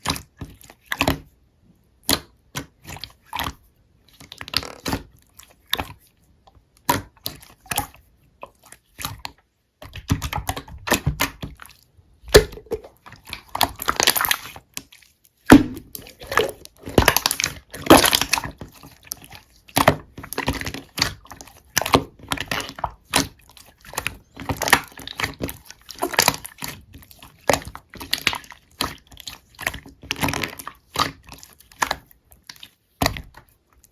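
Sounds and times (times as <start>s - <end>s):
slime squished by hand: 4.2s - 6.0s, 6.8s - 33.9s.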